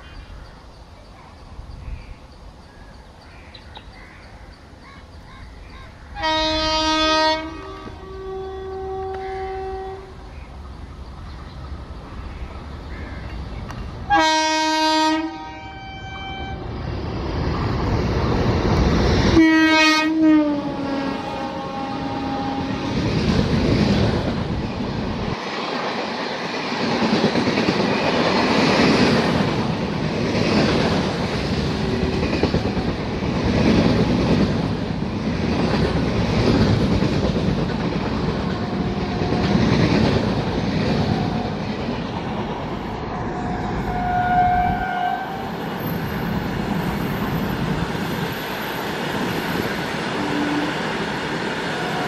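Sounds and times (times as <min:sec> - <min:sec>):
train rushing past: 0:05.1 - 0:52.0
locomotive horn blasts: 0:06.2 - 0:10.1, 0:14.1 - 0:16.6, 0:19.4 - 0:22.8, 0:43.2 - 0:45.5, 0:50.2 - 0:50.8.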